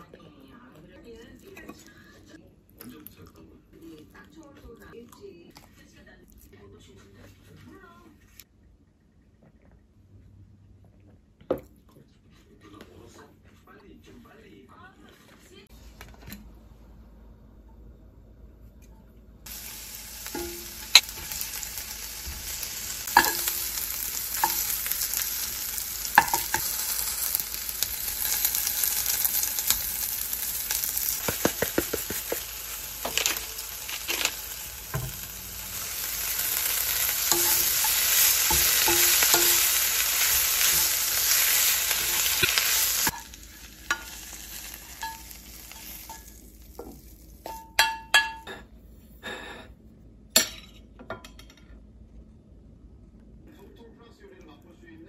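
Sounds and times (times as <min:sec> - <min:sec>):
food sizzling in frying pan: 0:19.4 - 0:47.6
utensil knocking against pan: 0:31.2 - 0:32.5.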